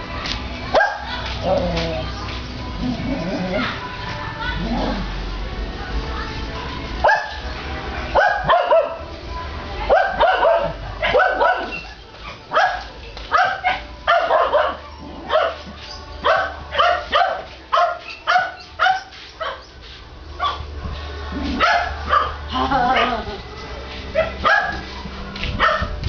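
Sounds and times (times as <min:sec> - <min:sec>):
dog barking: 0:00.7 - 0:01.1, 0:07.0 - 0:07.4, 0:08.2 - 0:09.0, 0:09.9 - 0:19.7, 0:20.4 - 0:20.7, 0:21.6 - 0:22.4, 0:24.2 - 0:24.9, 0:25.6 - 0:25.9.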